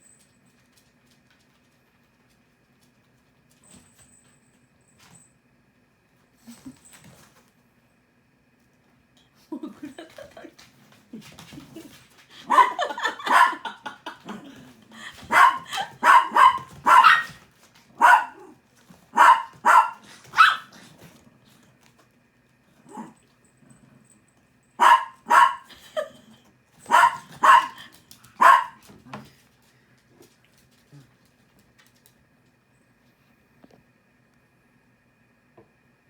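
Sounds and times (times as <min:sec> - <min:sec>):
small dog barking: 0:12.4 - 0:13.8, 0:15.3 - 0:20.7, 0:24.8 - 0:25.7, 0:26.9 - 0:28.8.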